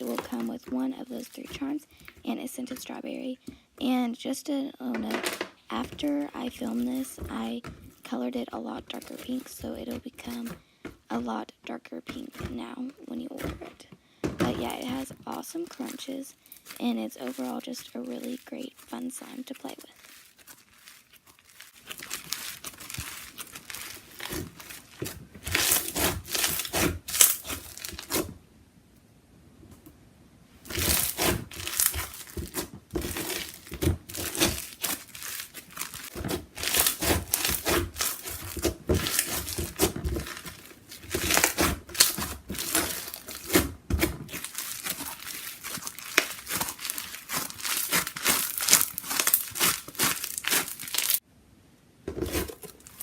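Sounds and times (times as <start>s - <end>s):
crunchy slime squeezed by hand: 15.7s - 28.4s, 30.6s - 51.2s.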